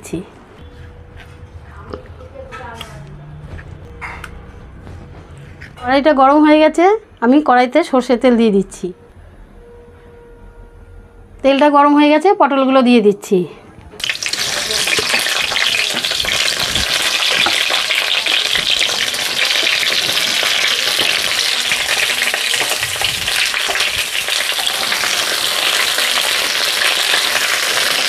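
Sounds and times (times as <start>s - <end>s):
vegetables sizzling in oil: 14.0s - 28.0s.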